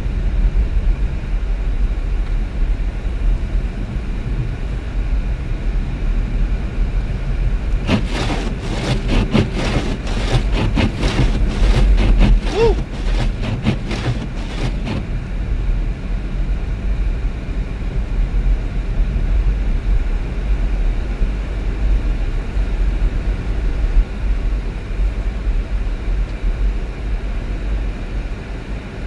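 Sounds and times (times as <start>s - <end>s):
tyre road noise: 7.7s - 15.1s.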